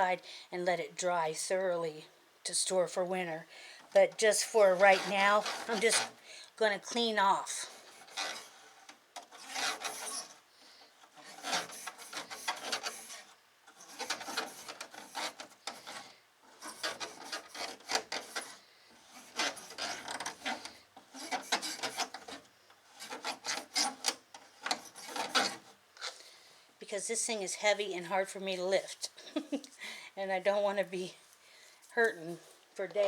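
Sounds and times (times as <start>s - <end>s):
brush bristles scrubbing: 4.0s - 10.4s.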